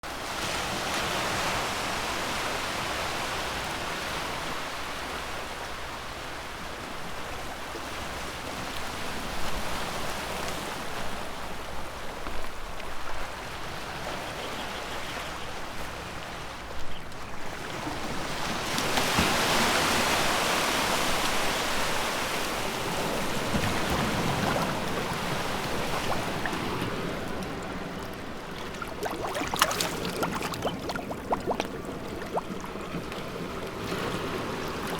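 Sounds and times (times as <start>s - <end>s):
sea waves washing onto shore: 17.6s - 34.9s
water splashes: 18.0s - 34.9s.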